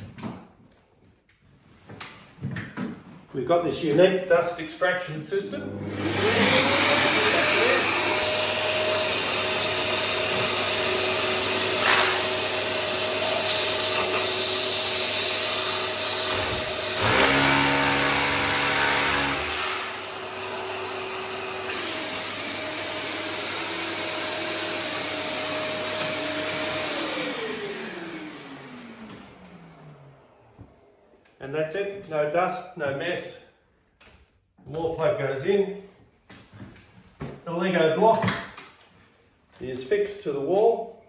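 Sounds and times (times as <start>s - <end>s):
vacuum dust extractor running: 5.4s - 31.2s
electric drill boring into wall: 5.8s - 30.2s.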